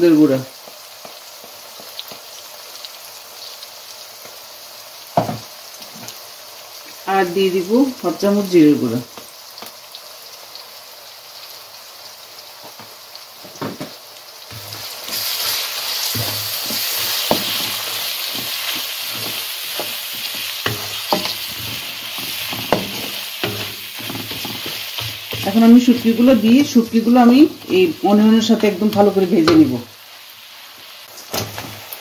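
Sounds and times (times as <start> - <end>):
onions sizzling in hot oil: 0.0 - 32.0
spatula scraping and knocking pan: 14.5 - 29.8, 31.2 - 31.9.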